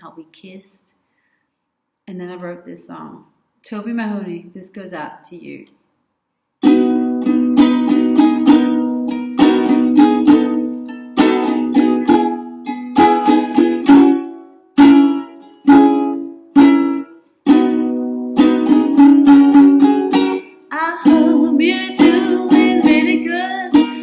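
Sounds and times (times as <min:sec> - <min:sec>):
ukulele chords ringing: 0:06.6 - 0:24.0
ukulele strumming: 0:06.6 - 0:24.0.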